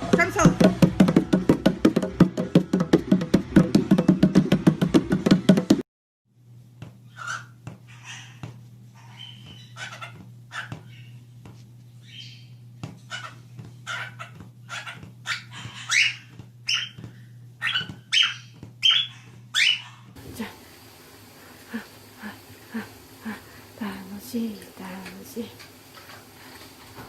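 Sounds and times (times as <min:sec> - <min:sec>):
steady low hum: 0:06.4 - 0:27.0.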